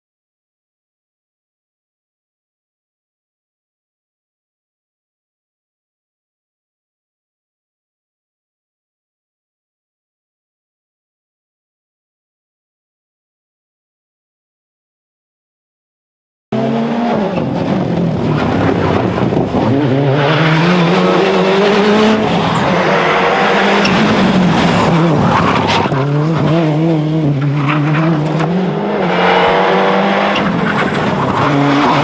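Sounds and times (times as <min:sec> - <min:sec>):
rally car engine revving: 0:16.6 - 0:32.0.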